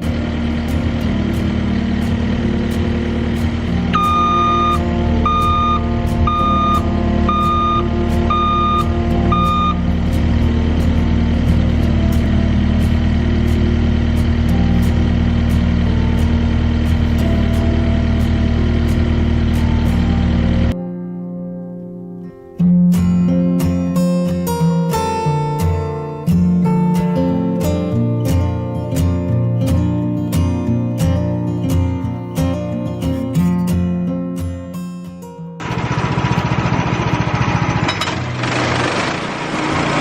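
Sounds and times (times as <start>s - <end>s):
vehicle engine running: 0.0s - 20.8s, 35.6s - 40.0s
backup alarm beeping: 3.9s - 9.9s.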